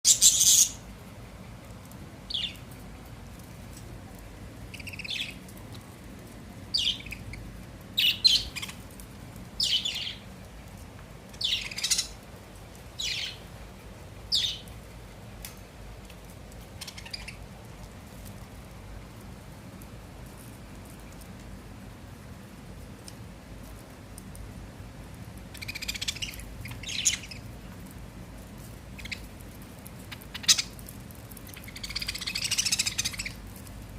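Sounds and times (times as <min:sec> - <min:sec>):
budgerigars chirping and squawking: 0:00.1 - 0:00.8, 0:11.4 - 0:12.2, 0:16.8 - 0:17.4, 0:25.6 - 0:27.4, 0:30.1 - 0:30.7, 0:31.6 - 0:33.4.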